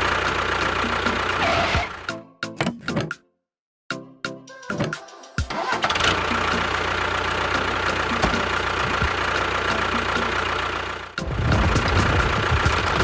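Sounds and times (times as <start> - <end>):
engine running: 0.0 - 2.1, 5.5 - 13.0.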